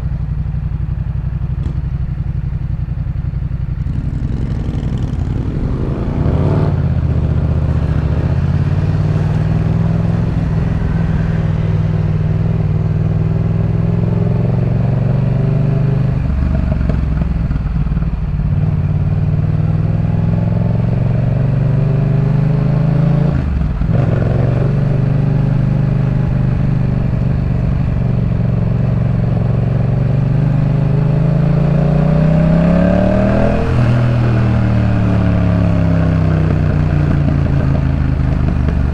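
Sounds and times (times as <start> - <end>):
motorcycle engine revving: 1.1 - 38.9.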